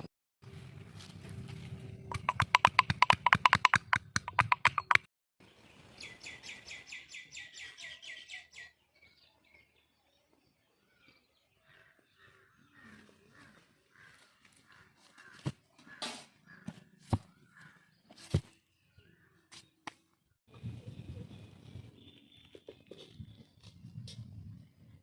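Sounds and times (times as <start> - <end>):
high rapid bird trill: 2.1 - 5.1.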